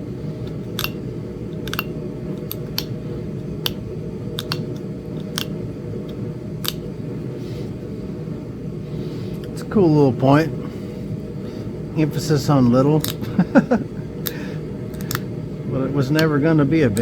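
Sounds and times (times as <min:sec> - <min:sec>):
low hum: 0:00.0 - 0:17.0
stone flakes snapping clicks: 0:00.5 - 0:03.0, 0:03.6 - 0:06.8, 0:13.0 - 0:13.3, 0:14.2 - 0:15.3.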